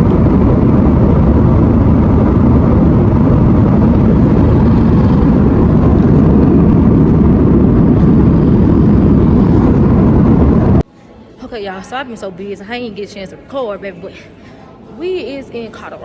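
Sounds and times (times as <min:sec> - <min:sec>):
jet engines roaring in cabin: 0:00.0 - 0:10.8.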